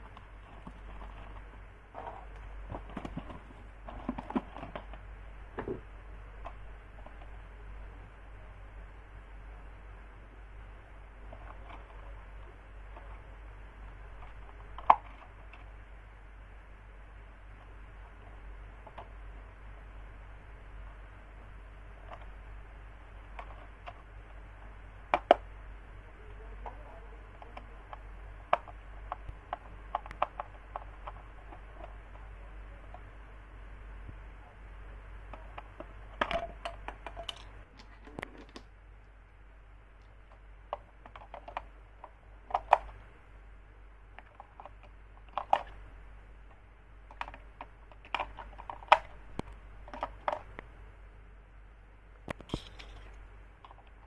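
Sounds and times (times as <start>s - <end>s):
handling clicks and knocks: 0.0s - 5.0s.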